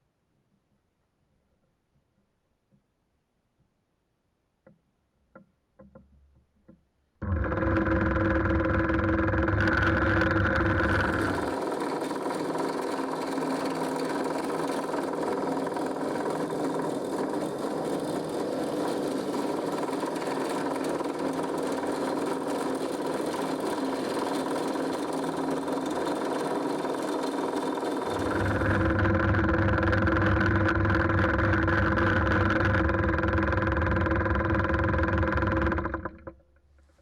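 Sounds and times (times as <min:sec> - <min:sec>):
drill press motor running: 0:07.2 - 0:36.4.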